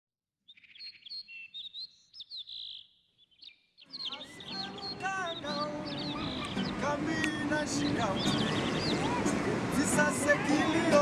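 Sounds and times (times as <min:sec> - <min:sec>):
small birds chirping: 0:00.4 - 0:11.0
background voices and noise: 0:03.9 - 0:11.0.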